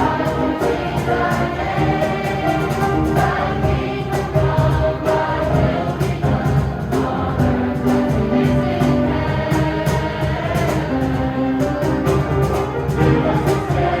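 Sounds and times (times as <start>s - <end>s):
gospel choir singing with instruments: 0.0s - 14.0s.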